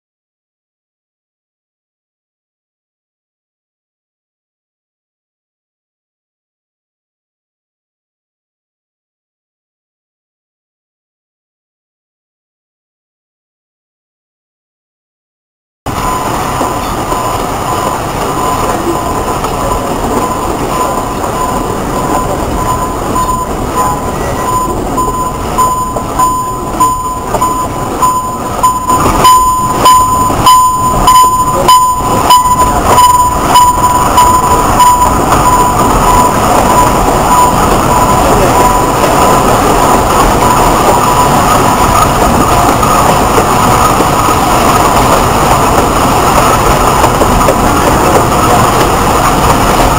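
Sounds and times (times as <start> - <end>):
high whine: 15.9 - 49.9
train running noise: 15.9 - 49.9
wheels clicking over rail joints: 15.9 - 49.9.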